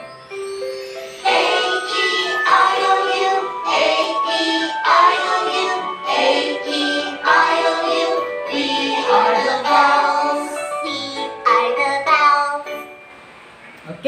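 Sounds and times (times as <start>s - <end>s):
children's song with backing: 0.0s - 13.3s.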